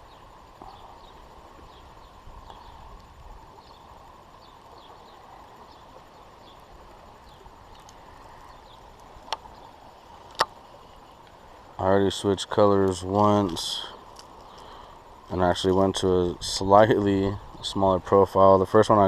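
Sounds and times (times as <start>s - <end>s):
faint bird chirps: 0.0s - 9.8s
wind rumble on microphone: 15.2s - 19.0s.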